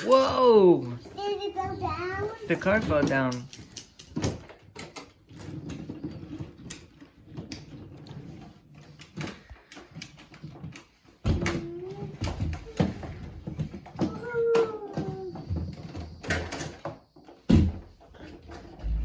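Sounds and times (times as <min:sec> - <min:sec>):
toy cars knocking and clattering: 0:00.0 - 0:18.9
loud bump: 0:18.8 - 0:19.0
low rumble: 0:18.8 - 0:19.0.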